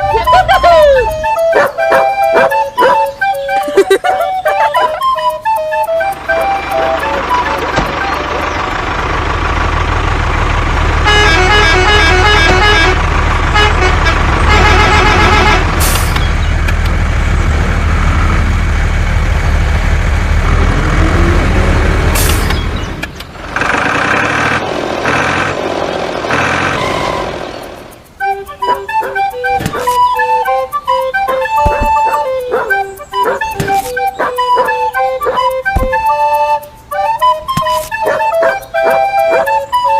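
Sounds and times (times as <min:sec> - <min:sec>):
melodic horn toots: 0:00.0 - 0:08.5, 0:11.0 - 0:16.2, 0:28.2 - 0:39.9
truck engine rumbling: 0:00.0 - 0:39.9
pulsing tonal horn pattern: 0:04.4 - 0:08.5, 0:10.8 - 0:16.2.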